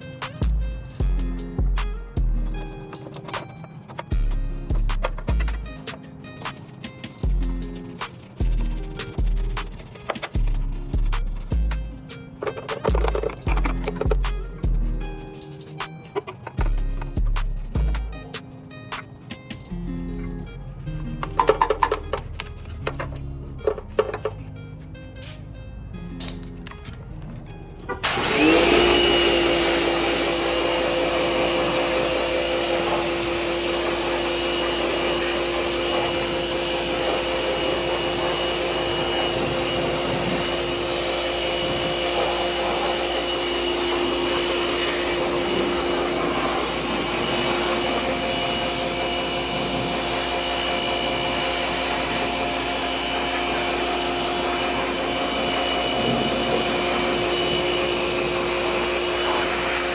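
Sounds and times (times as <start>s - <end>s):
cleaning machine motor running: 2.6s - 19.0s, 28.0s - 59.9s
loud rushing hiss: 28.1s - 59.9s.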